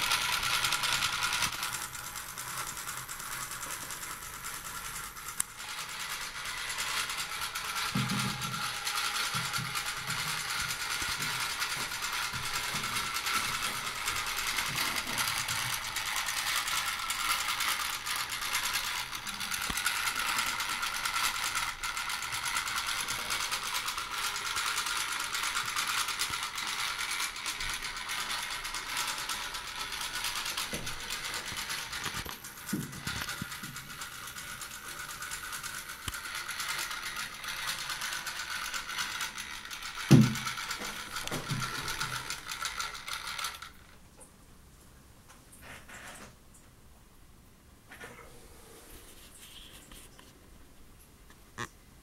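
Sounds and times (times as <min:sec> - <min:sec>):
clockwork motor whirring: 0:00.0 - 0:43.9.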